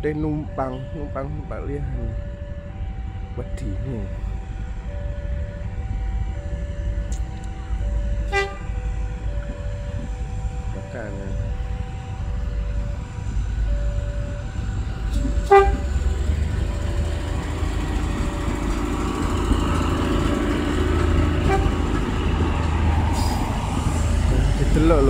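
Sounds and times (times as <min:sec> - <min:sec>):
two-tone warning beeps: 0:00.0 - 0:16.0
diesel train engine hum: 0:00.0 - 0:25.0
wheels rumbling on rails: 0:00.0 - 0:25.0.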